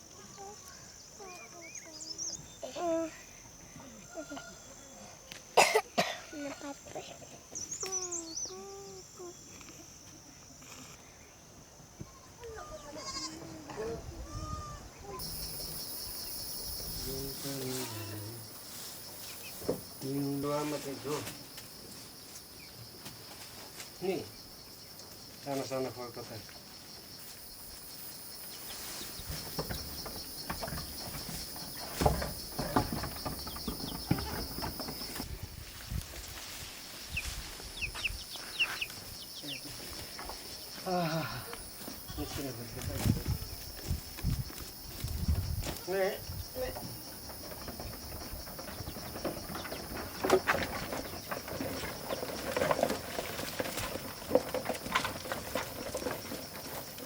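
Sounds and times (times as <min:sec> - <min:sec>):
insects chirring: 0:00.0 - 0:57.0
goat sounds: 0:12.5 - 0:15.6, 0:40.8 - 0:42.8
knocks clatter and rustling: 0:29.0 - 0:35.4, 0:42.8 - 0:57.0.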